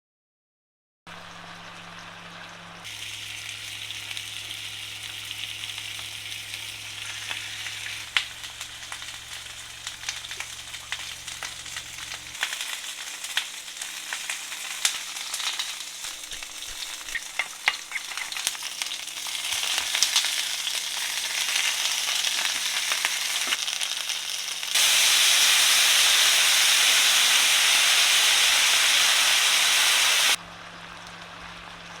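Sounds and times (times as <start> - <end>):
chicken sizzling in a pan: 1.1 - 30.4
oil spatters and crackles: 1.3 - 32.0
loud steady hiss: 24.7 - 30.4.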